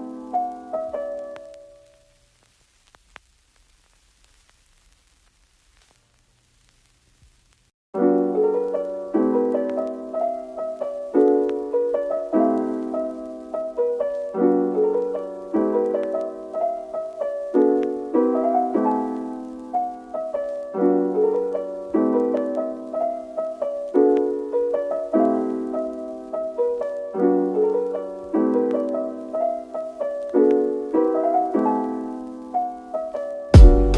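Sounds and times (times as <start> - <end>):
gentle piano chords: 0.0 - 2.1, 8.0 - 33.9.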